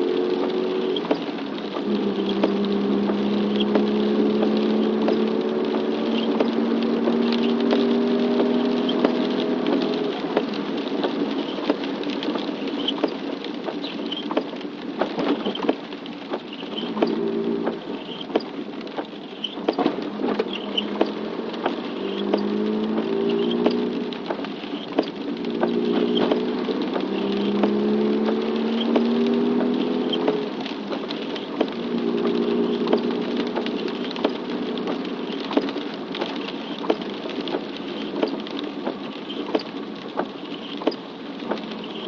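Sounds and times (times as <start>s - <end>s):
engine hum gliding in pitch: 0.0s - 10.4s, 16.7s - 18.1s, 19.9s - 36.5s
raindrops pattering: 0.0s - 42.0s.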